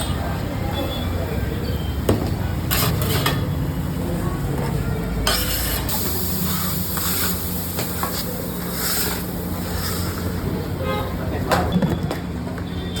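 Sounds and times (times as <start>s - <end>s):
food sizzling on a hot pan: 5.9s - 10.1s.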